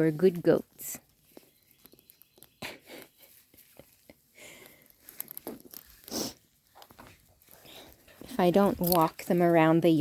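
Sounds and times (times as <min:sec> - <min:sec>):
goats tearing and crunching plants: 0:00.0 - 0:10.0
stems snapping: 0:08.6 - 0:09.4.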